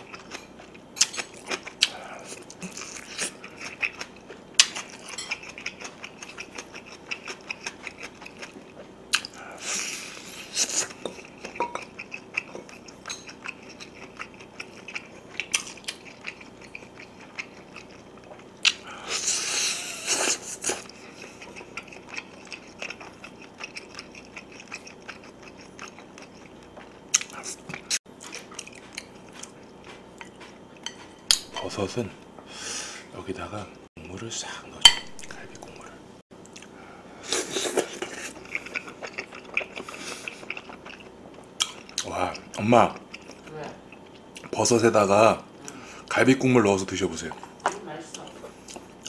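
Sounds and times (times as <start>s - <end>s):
wet chewing and mouth clicks: 10.6s - 19.3s, 20.0s - 31.0s, 37.6s - 44.6s.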